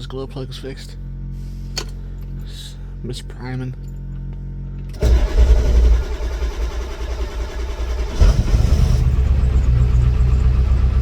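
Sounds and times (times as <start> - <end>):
diesel engine idling rough: 5.0 - 11.0.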